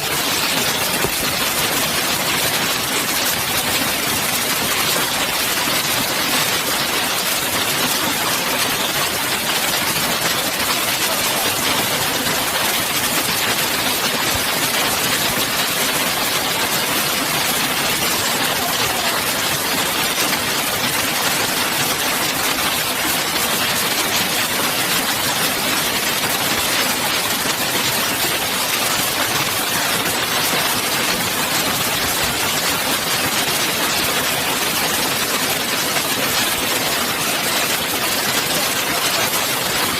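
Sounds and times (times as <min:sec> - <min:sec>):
hail pounding: 0:00.0 - 0:39.9.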